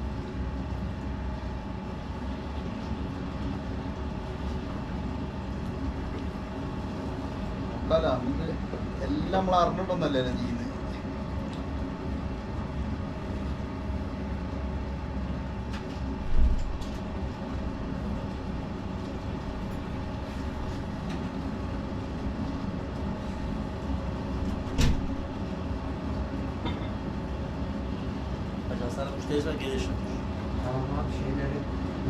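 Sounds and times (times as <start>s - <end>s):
potter's wheel humming: 0.0s - 32.0s
thump: 24.7s - 25.1s.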